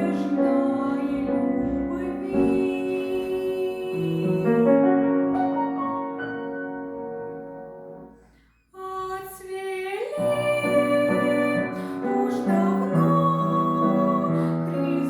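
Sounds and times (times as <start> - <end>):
woman singing: 0.0 - 5.6, 8.8 - 15.0
piano accompaniment: 0.0 - 8.4, 10.1 - 15.0.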